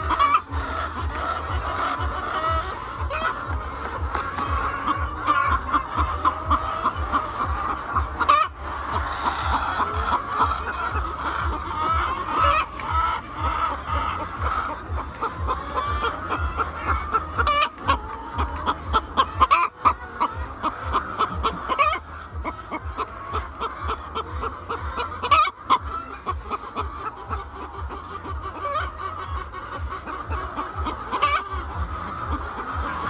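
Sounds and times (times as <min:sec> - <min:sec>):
hens clucking: 0:00.0 - 0:33.0.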